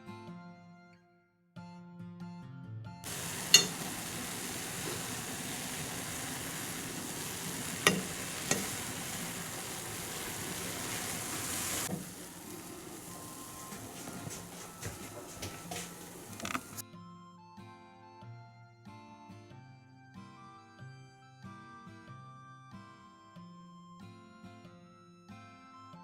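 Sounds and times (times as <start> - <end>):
food sizzling in a frying pan: 3.0 - 16.8
utensil knocking against pan: 3.1 - 16.8.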